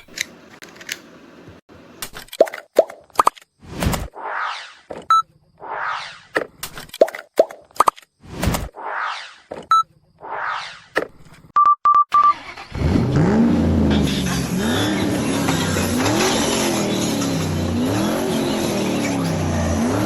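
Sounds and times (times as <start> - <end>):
short electronic beeps: 5.1 - 5.3, 9.7 - 9.9, 11.6 - 12.4
electronic whoosh: 5.6 - 6.4, 8.7 - 9.5, 10.2 - 10.9
electronic engine rev sound: 12.4 - 20.0.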